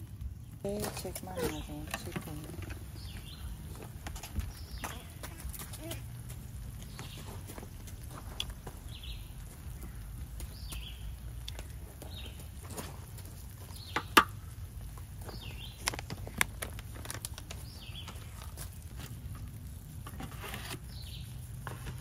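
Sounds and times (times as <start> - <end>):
low outdoor rumble: 0.0 - 22.0
bird chirping: 0.4 - 6.0, 6.8 - 7.6, 8.7 - 12.9, 13.6 - 14.2, 15.2 - 16.0, 17.4 - 18.5, 20.6 - 21.4.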